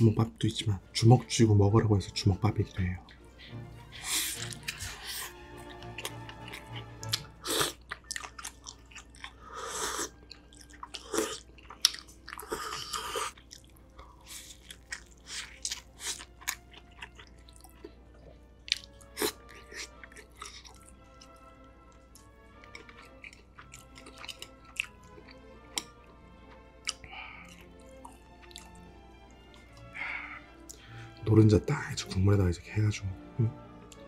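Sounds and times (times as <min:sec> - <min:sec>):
quiet background music: 0:00.0 - 0:34.0
chewing and biting rice ball: 0:04.0 - 0:30.0.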